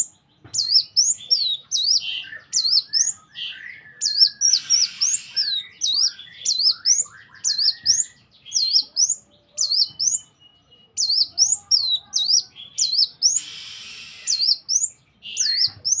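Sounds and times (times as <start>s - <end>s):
bird sharp high chirps: 0.0s - 16.0s
harsh raspy bird note: 4.4s - 5.8s, 13.3s - 14.6s.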